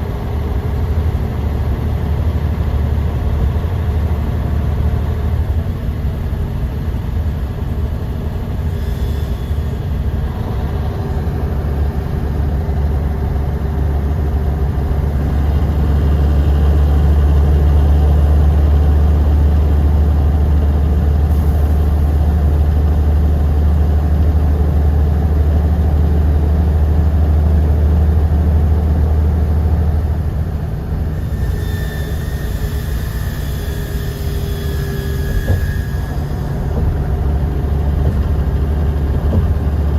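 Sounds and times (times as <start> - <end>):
bus engine low rumble: 0.0 - 39.9.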